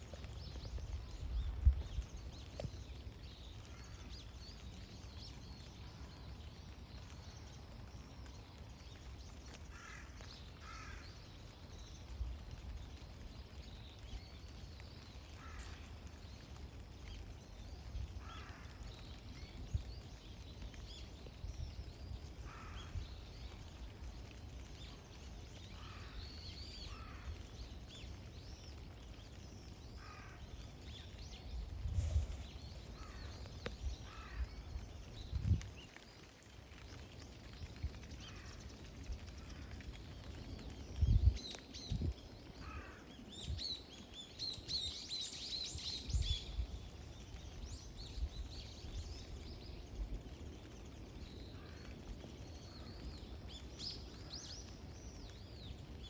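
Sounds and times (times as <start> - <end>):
wild birds calling: 29.9 - 35.0, 42.4 - 44.2.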